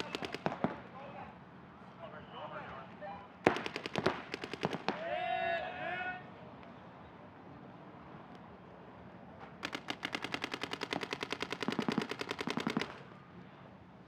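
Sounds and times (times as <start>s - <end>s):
paintball marker rapid firing: 0.0s - 0.8s, 3.5s - 5.0s, 9.6s - 13.2s.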